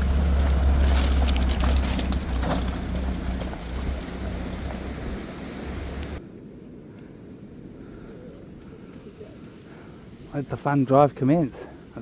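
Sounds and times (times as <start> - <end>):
engine deep rumble: 0.0 - 6.2
wind: 0.0 - 12.0.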